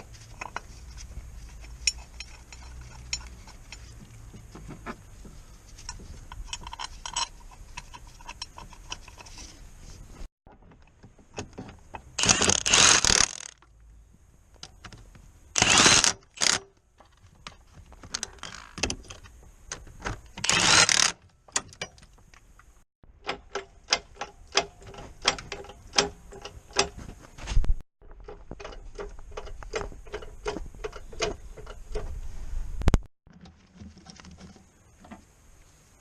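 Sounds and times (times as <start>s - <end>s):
quick metallic clicks: 12.2s - 13.6s, 15.6s - 16.7s, 20.4s - 21.2s.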